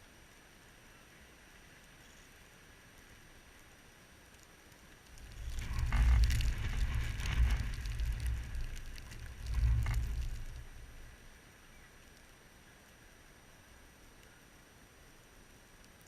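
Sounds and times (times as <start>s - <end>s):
wind gusts buffeting microphone: 5.1s - 11.2s.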